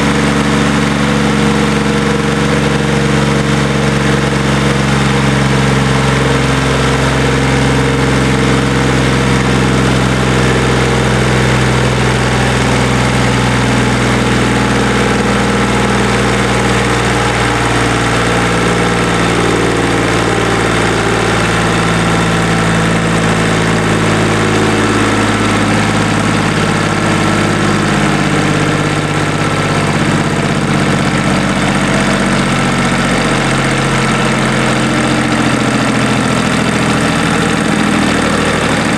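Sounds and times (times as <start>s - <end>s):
diesel engine clattering: 0.0s - 38.9s.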